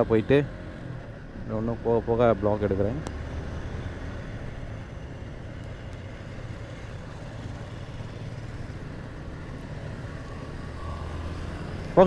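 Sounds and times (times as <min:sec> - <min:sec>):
road and wind noise: 0:00.0 - 0:12.0
motorcycle engine running: 0:03.4 - 0:12.0.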